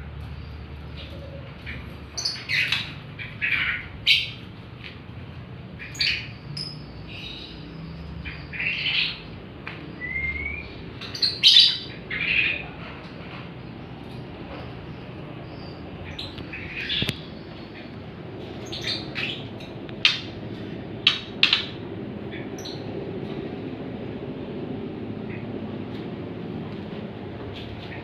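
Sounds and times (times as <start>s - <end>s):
birds chirping and squawking: 0.2s - 23.6s, 25.1s - 26.0s
bird rising whistle: 10.0s - 10.8s.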